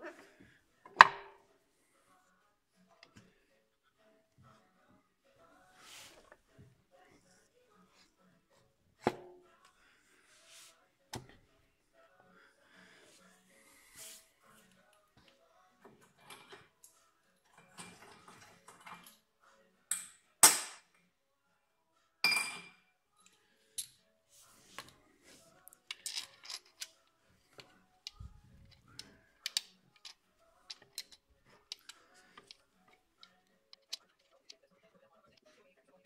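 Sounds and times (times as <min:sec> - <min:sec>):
metal tools clinking: 0:25.9 - 0:27.0, 0:28.1 - 0:34.4.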